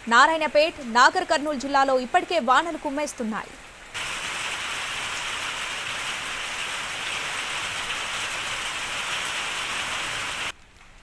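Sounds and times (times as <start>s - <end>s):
heavy rain on a wet street: 3.5s - 11.0s.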